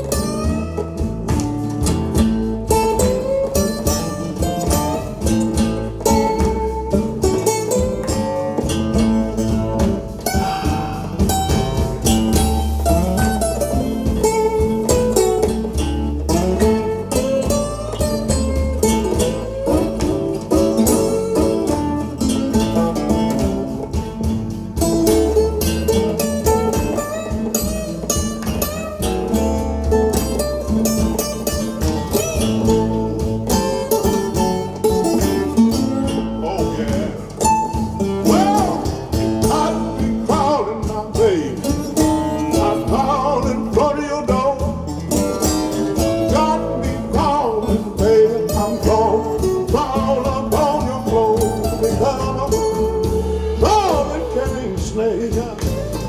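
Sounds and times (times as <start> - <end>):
blues guitar over loudspeakers: 0.0 - 56.0.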